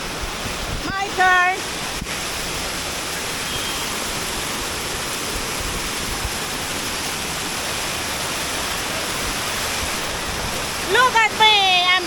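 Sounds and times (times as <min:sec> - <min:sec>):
fast-flowing stream: 0:00.0 - 0:12.0
waterfall rushing: 0:00.0 - 0:12.0.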